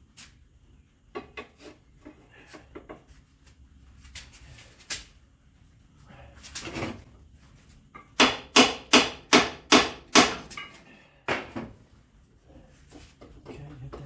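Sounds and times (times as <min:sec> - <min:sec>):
hand tools knocking and clicking: 0:08.0 - 0:11.6.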